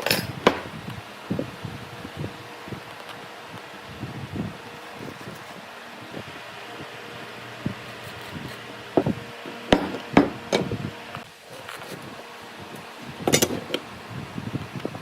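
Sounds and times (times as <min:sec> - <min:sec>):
steady low hum: 0:00.0 - 0:15.0
wooden knocks: 0:09.7 - 0:10.4.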